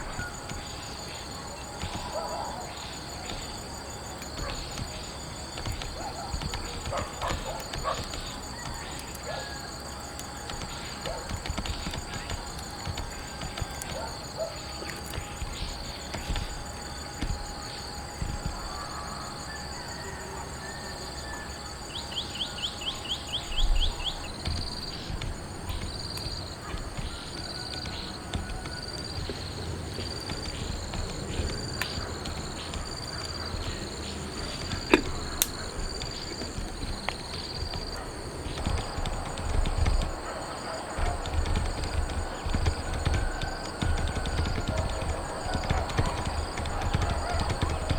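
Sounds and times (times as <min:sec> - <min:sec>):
steady nature background: 0:00.0 - 0:47.9.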